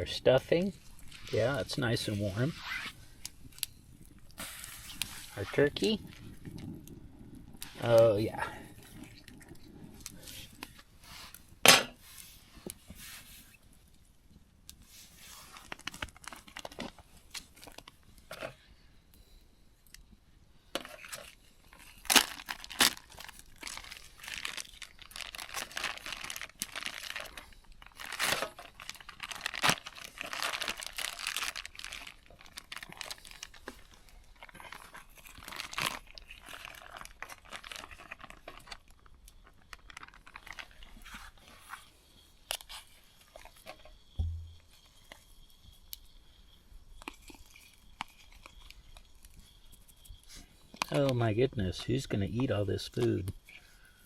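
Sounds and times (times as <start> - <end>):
plastic packaging crinkling: 15.5 - 18.0, 21.0 - 41.9.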